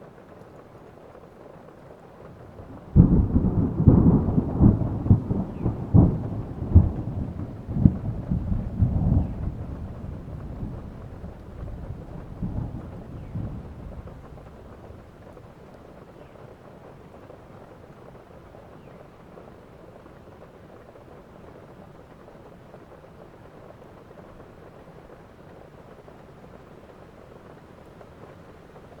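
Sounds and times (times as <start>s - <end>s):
steady rain: 0.0s - 29.0s
thunder clap and rumble: 2.2s - 15.7s.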